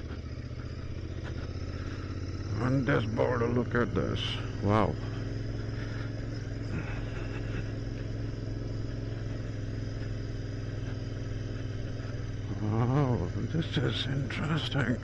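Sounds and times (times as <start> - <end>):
motorcycle engine cruising steadily: 0.0 - 15.0.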